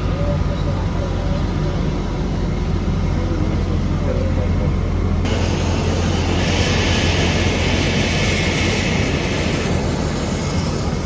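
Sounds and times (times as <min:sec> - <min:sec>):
jet aircraft low rumble: 0:01.7 - 0:11.0
jet engine high hiss: 0:05.3 - 0:11.0.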